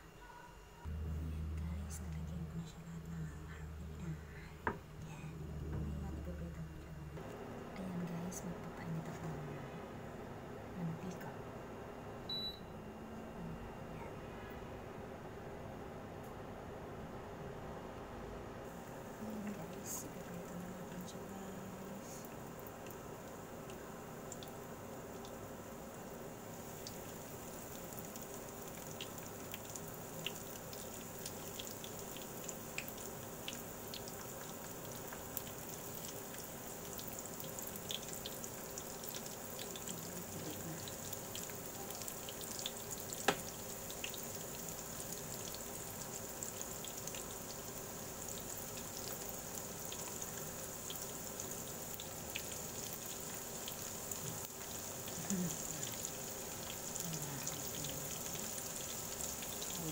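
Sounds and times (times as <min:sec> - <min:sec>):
food frying in hot oil: 0:18.6 - 0:59.9.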